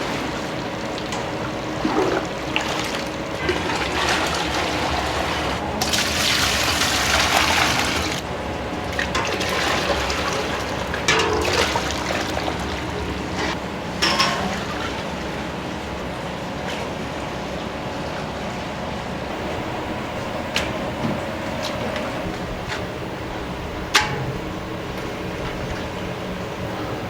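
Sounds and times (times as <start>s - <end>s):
gush of water: 0.0s - 8.2s
water running and splashing: 0.0s - 8.2s, 8.9s - 18.6s.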